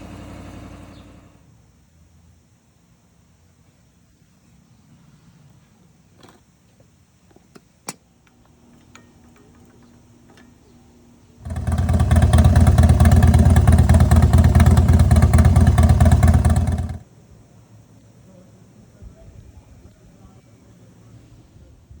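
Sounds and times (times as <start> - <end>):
motorcycle engine running: 0.0 - 1.4, 8.6 - 17.1.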